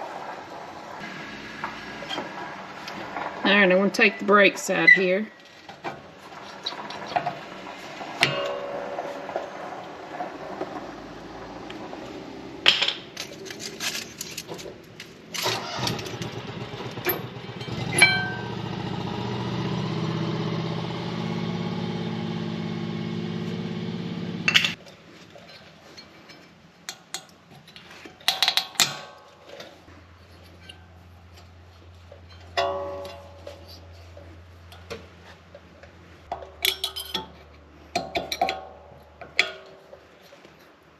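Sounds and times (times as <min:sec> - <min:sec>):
metal clank: 0:05.8 - 0:16.3, 0:17.0 - 0:18.8, 0:24.5 - 0:24.8, 0:25.4 - 0:29.8, 0:32.2 - 0:35.4, 0:36.3 - 0:40.1
metal knocks and clinks: 0:08.2 - 0:10.9, 0:12.7 - 0:15.1, 0:17.6 - 0:18.5, 0:32.2 - 0:33.9, 0:36.3 - 0:39.8.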